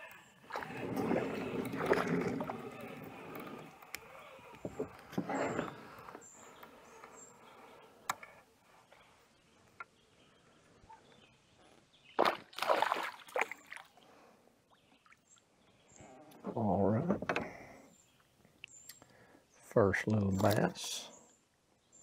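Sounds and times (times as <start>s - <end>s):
water splashing: 0.5s - 4.1s, 12.2s - 13.9s.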